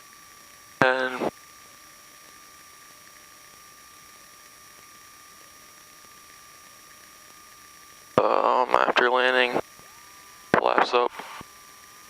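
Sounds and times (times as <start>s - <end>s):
electrical hiss: 0.0s - 12.0s
high-pitched whine: 0.0s - 12.0s.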